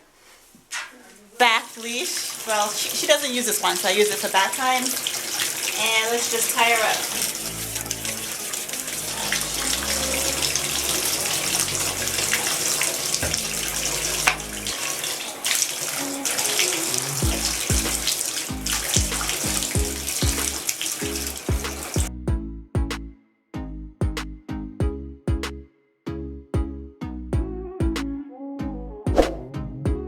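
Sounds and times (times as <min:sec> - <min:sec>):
bath water running: 0:01.4 - 0:22.1
background music with pulsing bass: 0:17.1 - 0:30.0.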